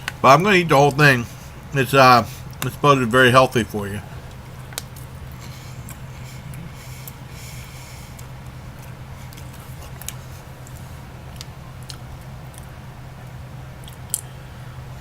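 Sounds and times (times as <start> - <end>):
steady low hum: 0.0 - 15.0
crunchy chewing: 4.0 - 12.8.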